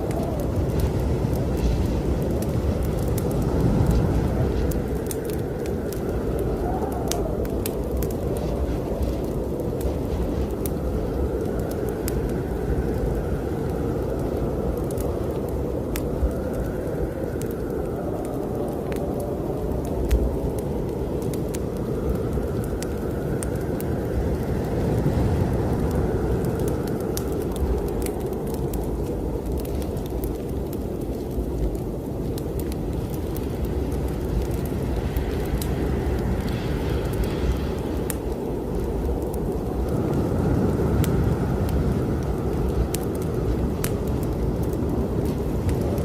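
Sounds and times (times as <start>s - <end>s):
strong storm wind whistling: 0.0s - 46.0s
wood fire crackling: 0.0s - 46.0s.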